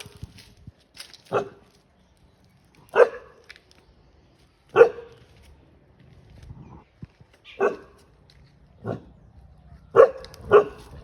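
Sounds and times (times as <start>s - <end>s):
dog barking: 1.3s - 1.6s, 2.9s - 3.4s, 4.7s - 5.2s, 7.5s - 8.0s, 8.8s - 9.1s, 9.9s - 11.0s.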